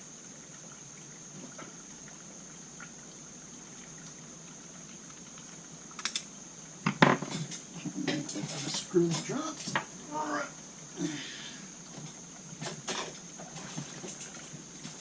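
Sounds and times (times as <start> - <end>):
steady hiss: 0.0 - 15.0
small metal parts clicking: 6.0 - 6.3.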